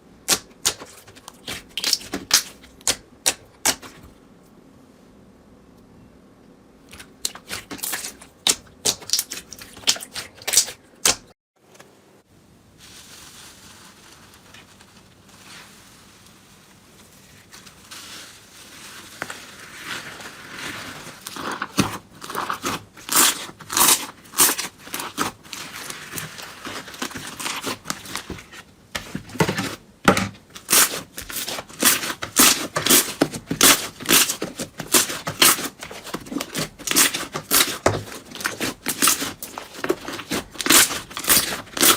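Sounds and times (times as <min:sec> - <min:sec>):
slime crackling and popping: 0:00.3 - 0:03.9, 0:07.0 - 0:11.3, 0:19.0 - 0:28.4, 0:30.6 - 0:41.9
slime squishing: 0:00.3 - 0:04.1, 0:06.9 - 0:11.3, 0:12.8 - 0:41.9.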